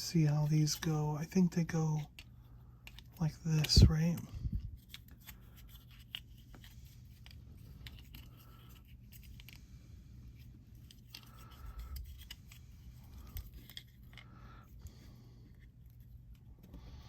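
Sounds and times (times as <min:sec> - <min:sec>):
small plastic parts clicking: 0:02.0 - 0:09.6, 0:10.8 - 0:14.3.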